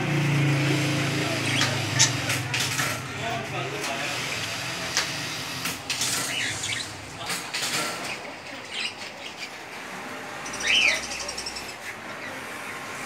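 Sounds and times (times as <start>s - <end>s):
small birds chirping: 1.0s - 2.5s, 6.1s - 7.2s, 8.0s - 9.7s, 10.4s - 13.0s.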